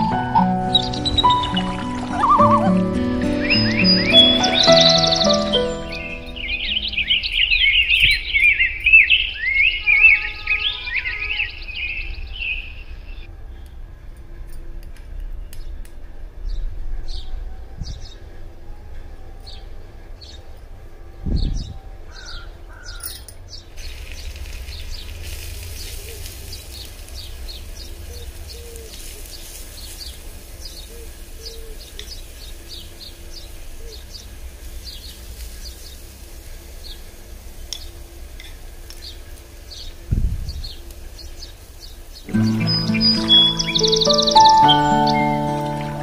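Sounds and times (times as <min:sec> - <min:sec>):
small birds chirping: 0:00.0 - 0:13.3, 0:38.9 - 0:46.0.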